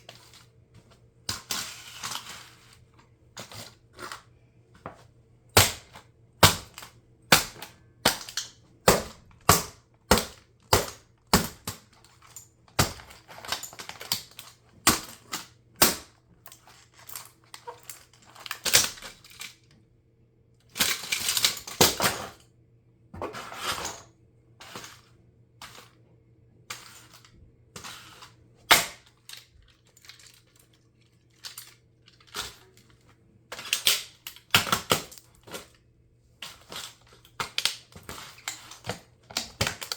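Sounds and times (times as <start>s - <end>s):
plastic crunching and grinding: 0.0s - 19.8s, 20.7s - 22.5s, 26.6s - 39.9s
plastic cracking: 36.4s - 39.9s.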